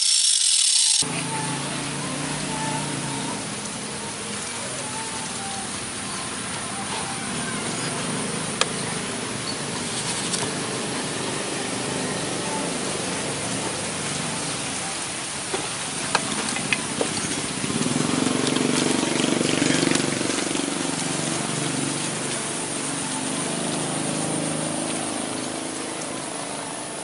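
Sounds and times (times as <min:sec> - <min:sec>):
steel grinding on sander belt: 0:00.0 - 0:01.1
belt sander running: 0:00.0 - 0:04.5.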